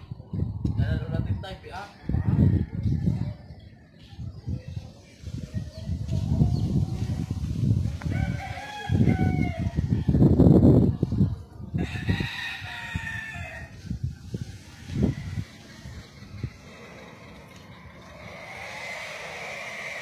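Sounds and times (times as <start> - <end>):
rooster crowing: 8.1 - 10.2, 11.8 - 13.8, 18.1 - 20.0
loud uneven low rumble: 13.9 - 20.0.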